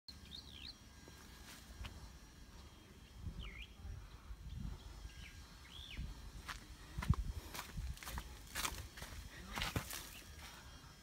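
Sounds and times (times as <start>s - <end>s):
whistled bird calls: 3.4s - 3.8s.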